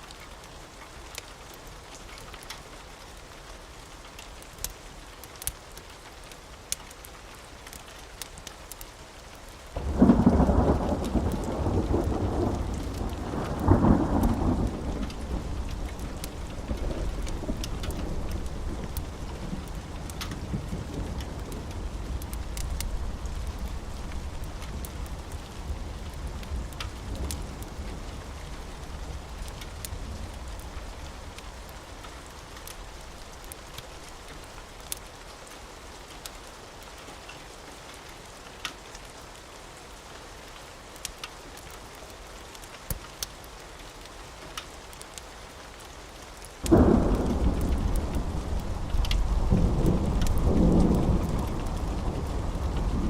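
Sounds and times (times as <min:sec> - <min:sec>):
steady rain: 0:00.0 - 0:53.0
wood fire crackling: 0:00.0 - 0:53.0
thunder rumbling: 0:09.8 - 0:32.4, 0:46.6 - 0:53.0.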